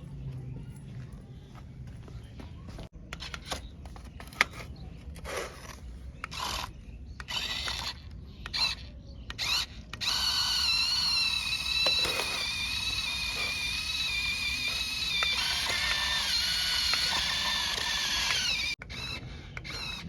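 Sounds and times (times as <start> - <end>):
toy electric motor whining: 5.3 - 20.0.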